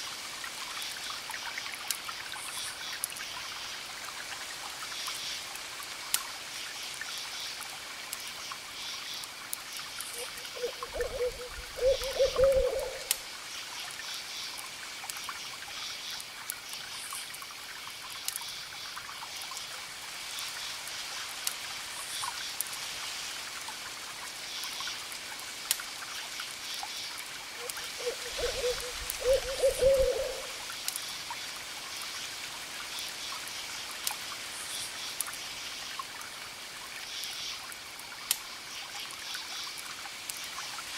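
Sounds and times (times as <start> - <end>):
owl hooting: 10.2 - 13.1, 27.6 - 30.6.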